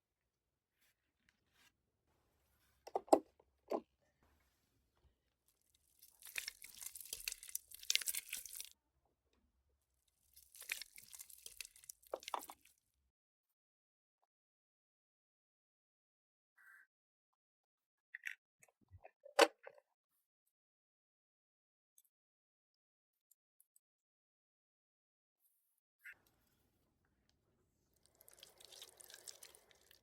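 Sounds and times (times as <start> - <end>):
modelling clay tearing: 6.0 - 8.7, 10.4 - 12.7, 28.1 - 30.0.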